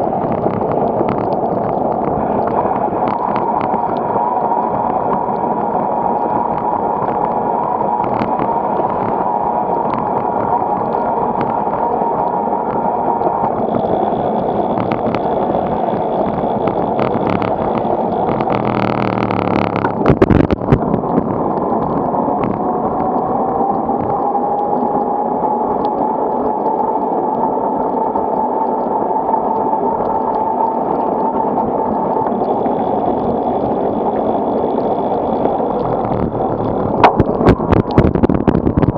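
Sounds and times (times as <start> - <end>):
wind roaring on microphone: 0.0 - 38.9.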